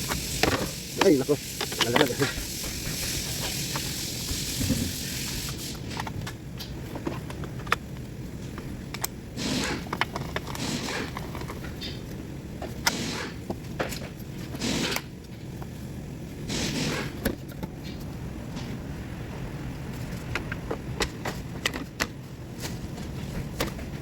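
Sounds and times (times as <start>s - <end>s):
hiss: 0.0s - 6.1s, 9.4s - 10.0s, 10.6s - 11.2s, 12.8s - 13.5s, 14.6s - 15.1s, 16.5s - 17.2s.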